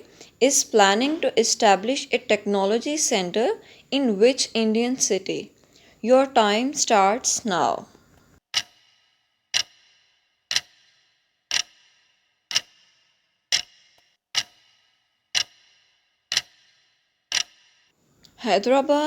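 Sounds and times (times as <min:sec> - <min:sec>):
clock ticking with bright ring: 0:08.5 - 0:17.9.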